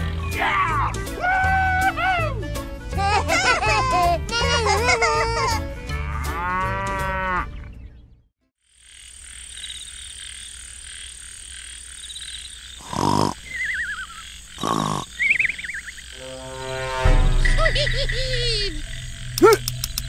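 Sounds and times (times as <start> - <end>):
insects and frogs chirring: 8.6 - 20.0
cartoon snore with whistle: 12.8 - 15.5.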